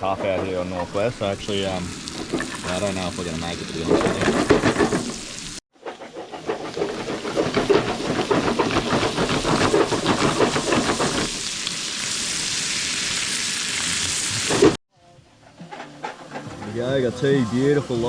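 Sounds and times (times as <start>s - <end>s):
food sizzling in butter: 0.4s - 14.8s.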